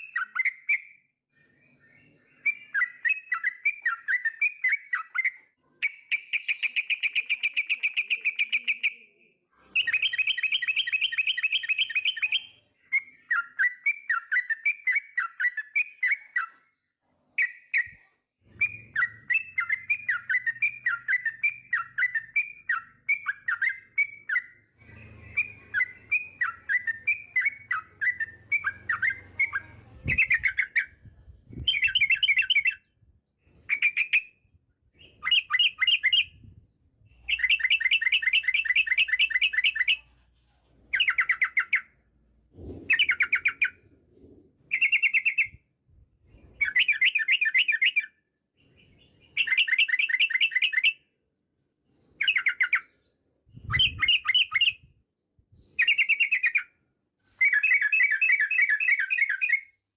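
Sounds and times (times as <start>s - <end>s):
bird whistled notes: 18.6s - 32.8s, 42.6s - 45.6s, 53.6s - 54.9s, 57.3s - 59.8s.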